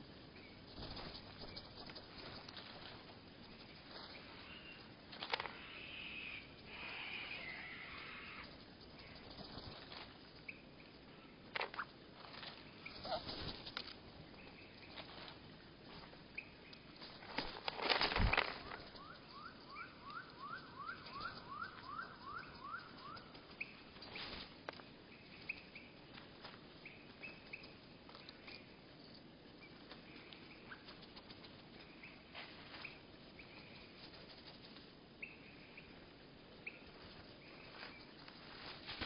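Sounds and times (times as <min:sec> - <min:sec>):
slowed bird calls: 0:03.4 - 0:09.6, 0:18.3 - 0:24.4.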